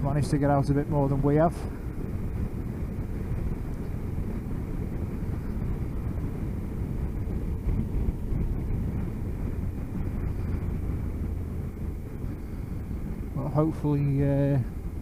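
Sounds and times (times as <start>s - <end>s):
motorcycle engine and road drone: 0.0s - 15.0s
wind rumble on helmet microphone: 0.0s - 15.0s.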